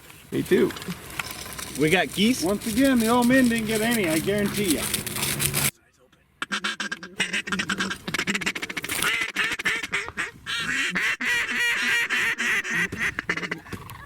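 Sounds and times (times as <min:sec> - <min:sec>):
ducks quacking: 0:06.4 - 0:14.0.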